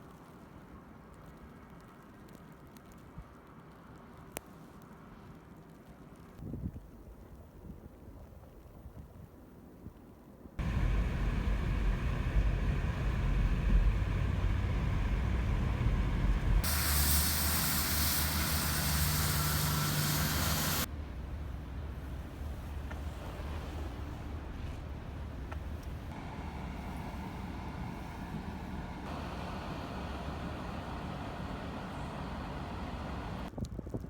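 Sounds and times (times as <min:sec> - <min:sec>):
loud hiss: 0:10.6 - 0:20.9
traffic low rumble: 0:10.6 - 0:33.6.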